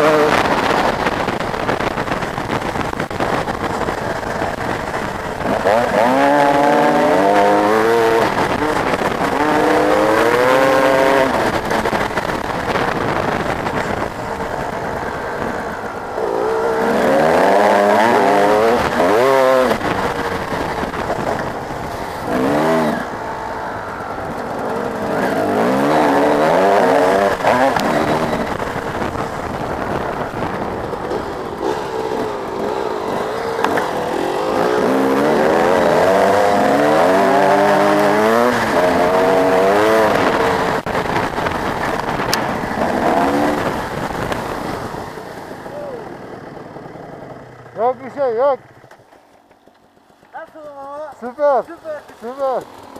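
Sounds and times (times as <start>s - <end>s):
motocross bike engines revving: 0.0s - 52.9s.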